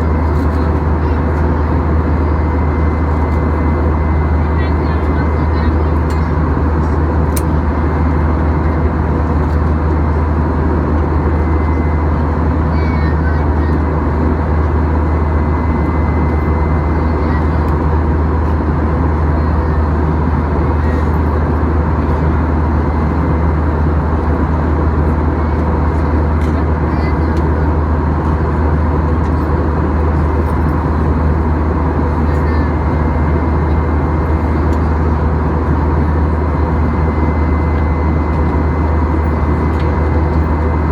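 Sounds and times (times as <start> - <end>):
jet airliner engine drone: 0.0 - 40.9.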